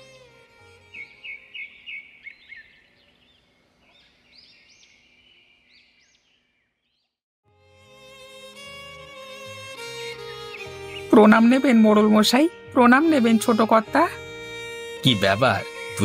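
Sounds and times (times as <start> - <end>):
violin music: 0.0 - 2.2, 7.5 - 16.0
small birds chirping: 0.8 - 7.2, 10.0 - 12.4.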